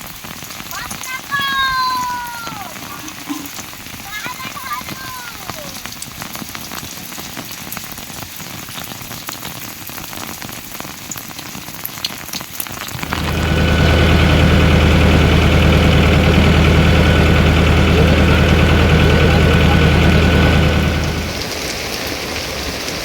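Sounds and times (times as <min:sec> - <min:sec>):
rain falling: 0:00.0 - 0:23.0
low mechanical hum: 0:12.9 - 0:21.6.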